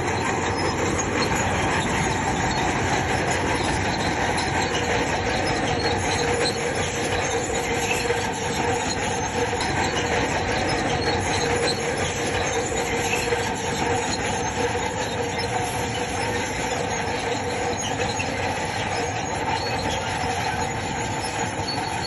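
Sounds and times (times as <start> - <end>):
bulldozer engine running: 0.0 - 22.0
steel crawler tracks squealing: 0.0 - 22.0.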